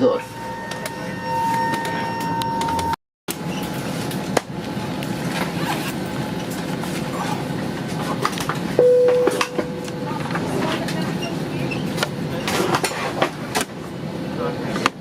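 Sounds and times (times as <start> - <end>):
air-conditioning rush: 0.0 - 15.0.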